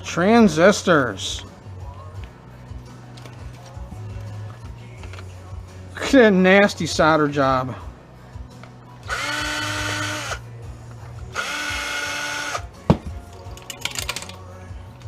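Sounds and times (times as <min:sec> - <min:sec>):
electric drill motor whining: 0:09.0 - 0:10.4, 0:11.3 - 0:12.6
sharp drill click: 0:09.1 - 0:10.4.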